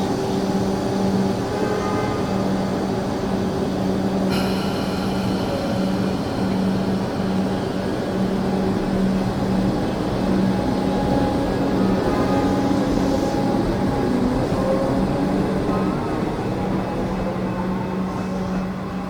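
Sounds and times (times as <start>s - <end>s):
electric train humming: 0.0s - 19.0s
high ringing tone: 4.3s - 8.4s.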